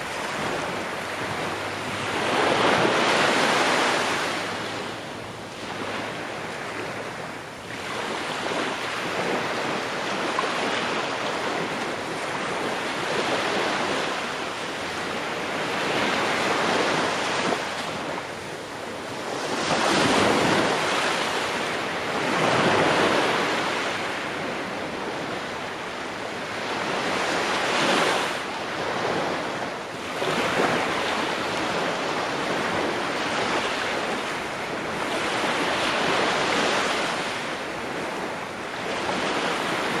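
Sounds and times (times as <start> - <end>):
ocean waves breaking on shore: 0.0 - 40.0.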